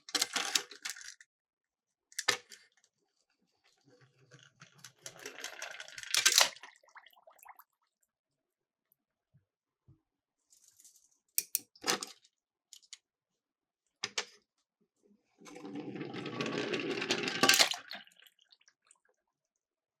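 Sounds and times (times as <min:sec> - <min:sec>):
toy cars clicking on plastic slope: 0:00.0 - 0:01.3, 0:02.2 - 0:02.8, 0:04.0 - 0:06.6, 0:15.5 - 0:17.8.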